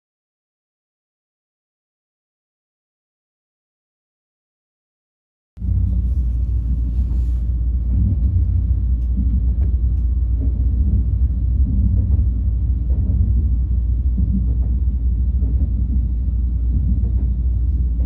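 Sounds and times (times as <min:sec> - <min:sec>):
train rumbling at speed: 0:05.6 - 0:18.0.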